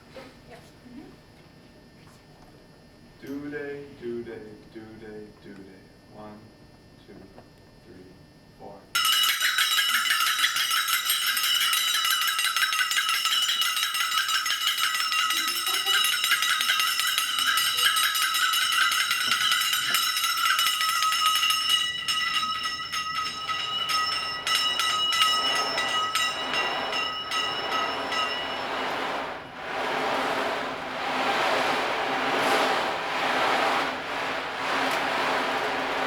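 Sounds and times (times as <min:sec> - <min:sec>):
jingle bells shaken: 0:09.0 - 0:29.6
low rattling: 0:09.2 - 0:36.0.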